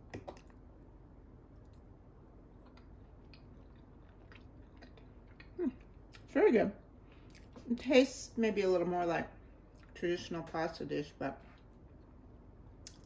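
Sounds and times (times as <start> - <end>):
low room hum: 0.0 - 13.0
faint chewing: 2.5 - 6.3, 7.1 - 7.7.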